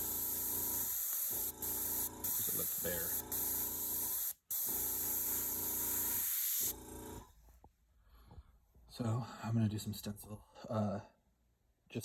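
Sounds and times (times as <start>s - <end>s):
airbrush spraying hiss: 0.0s - 6.8s
air compressor humming: 0.0s - 7.3s.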